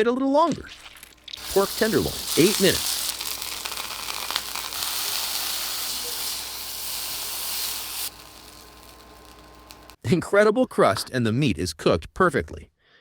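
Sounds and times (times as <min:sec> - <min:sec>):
meat sizzling: 0:00.5 - 0:10.0.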